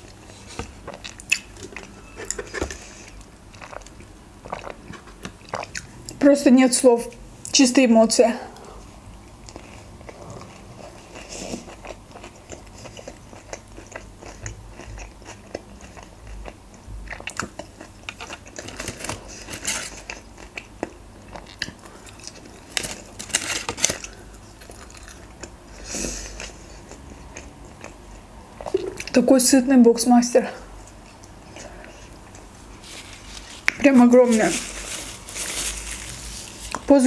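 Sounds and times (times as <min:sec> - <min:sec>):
person chewing close to microphone: 0:00.0 - 0:06.2, 0:08.5 - 0:29.2, 0:30.7 - 0:33.8
wet mouth clicks and crunching: 0:00.7 - 0:01.9, 0:03.2 - 0:06.2.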